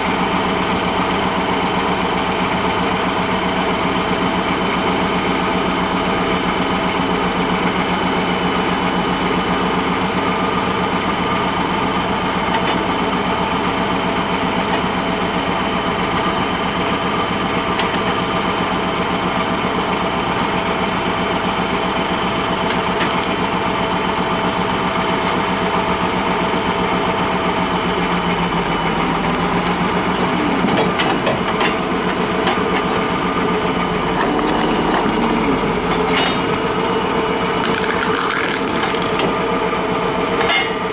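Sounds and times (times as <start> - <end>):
heavy engine idling: 0.0 - 40.9.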